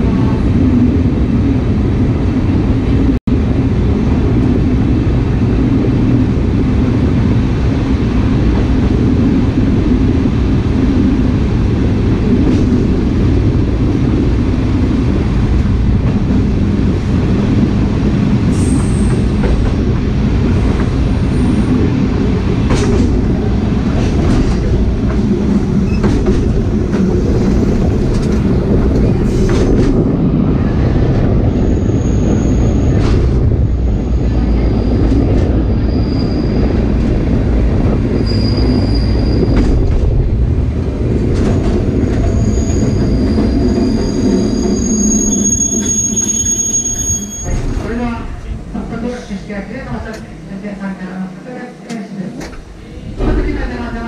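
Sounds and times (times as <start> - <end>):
wheels rumbling on rail: 0.0 - 54.0
high wheel squeal: 35.7 - 36.8, 38.2 - 39.6, 42.2 - 47.8.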